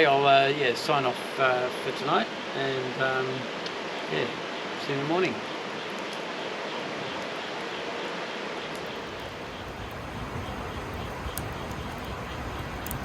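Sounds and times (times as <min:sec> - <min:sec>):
faint ticks: 0:08.7 - 0:13.0.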